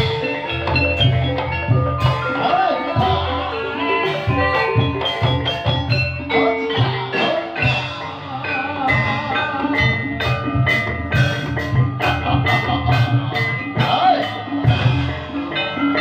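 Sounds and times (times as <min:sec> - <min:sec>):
drum beats: 0:00.0 - 0:16.0
mallet percussion notes: 0:00.0 - 0:16.0.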